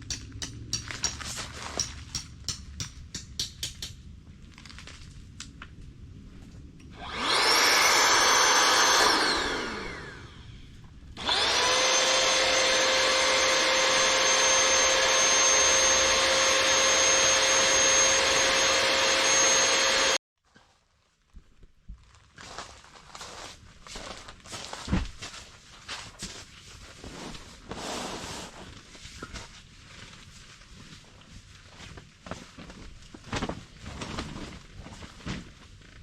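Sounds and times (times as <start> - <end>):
small electric motor whining: 7.0 - 20.2.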